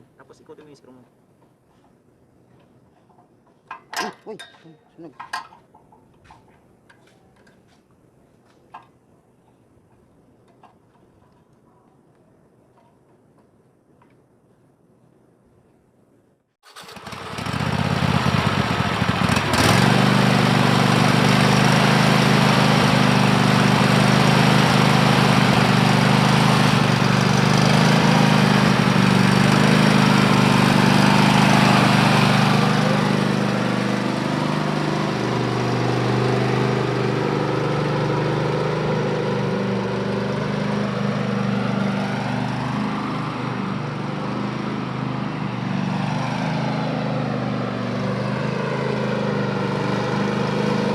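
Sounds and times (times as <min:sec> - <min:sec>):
riding mower engine running: 0:16.7 - 0:50.9.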